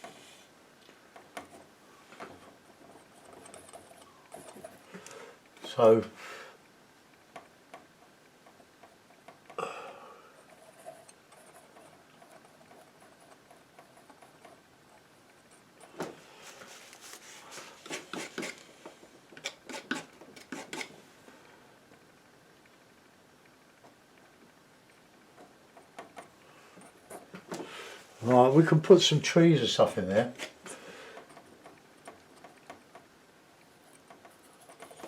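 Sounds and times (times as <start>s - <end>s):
painting knife scraping paint: 16.3s - 18.7s, 19.4s - 20.9s.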